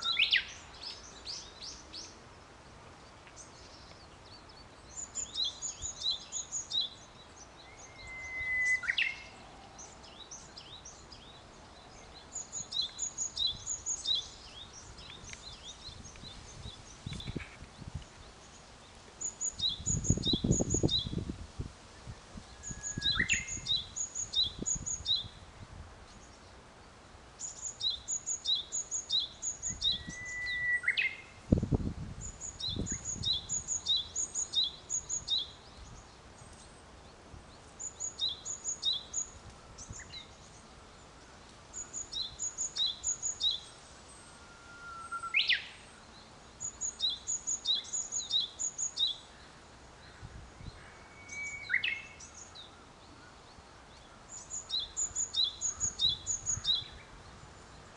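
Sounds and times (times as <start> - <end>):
bird rising whistle: 7.8 - 9.0, 44.4 - 45.6.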